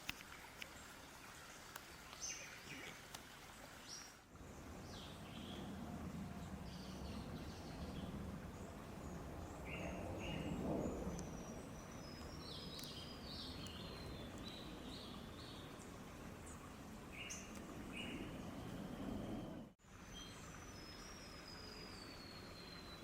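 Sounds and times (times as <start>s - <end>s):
birds chirping: 3.8s - 19.7s
faint low rumble: 4.4s - 19.8s.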